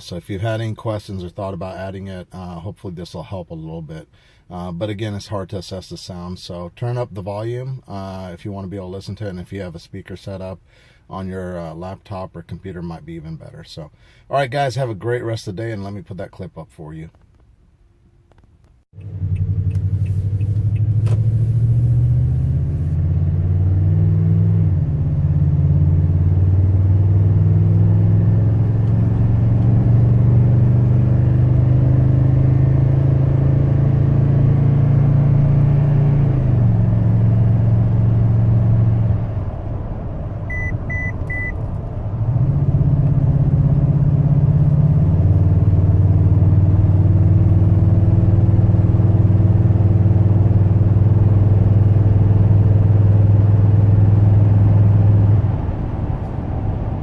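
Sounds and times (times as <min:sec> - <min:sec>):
truck engine accelerating: 0:18.9 - 0:57.0
short beeps: 0:40.5 - 0:41.6.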